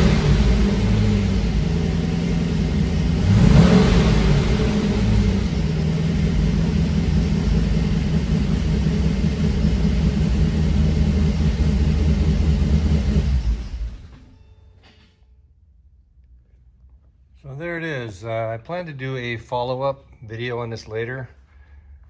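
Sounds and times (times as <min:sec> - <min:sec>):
car engine running: 0:00.0 - 0:14.3.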